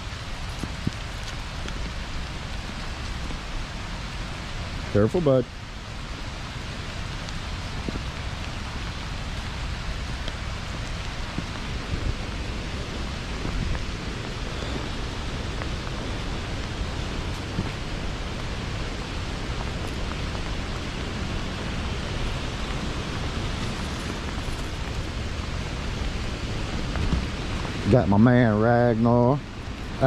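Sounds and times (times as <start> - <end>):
rain: 0.0 - 30.0
waterfall rushing: 0.0 - 30.0.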